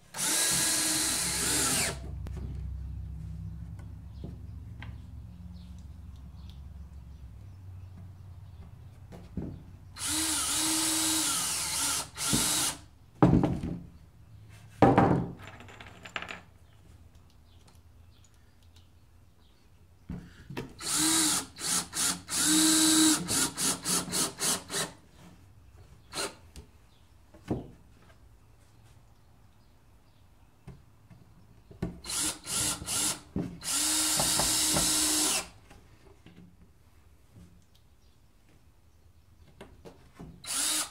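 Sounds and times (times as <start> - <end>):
power drill drilling into wood: 0.1 - 2.0, 10.0 - 12.8, 20.8 - 24.9, 32.1 - 35.5, 40.4 - 40.9.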